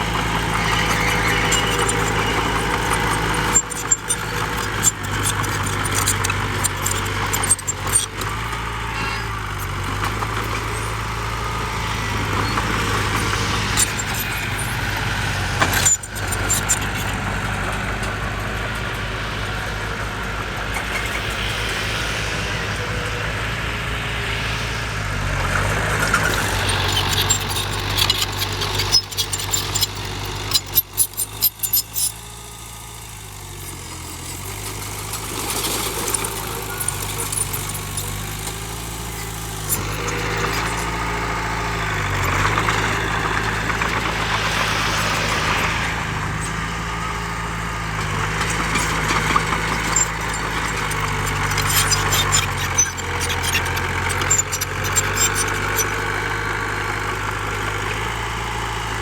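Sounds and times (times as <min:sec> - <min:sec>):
heavy machinery diesel engine: 0:00.0 - 0:59.0
sharp metallic clatter: 0:20.6 - 0:56.1.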